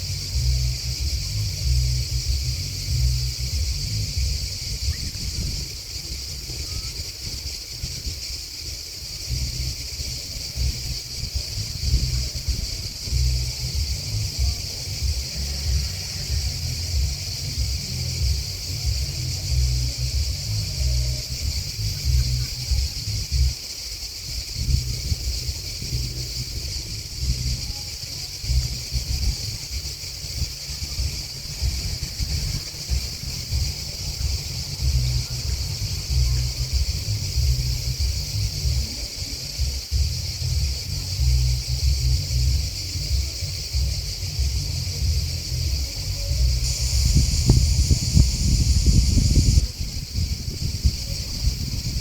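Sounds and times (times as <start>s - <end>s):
grasshoppers and crickets chirping: 0.0s - 52.0s
low uneven rumble: 0.0s - 52.0s.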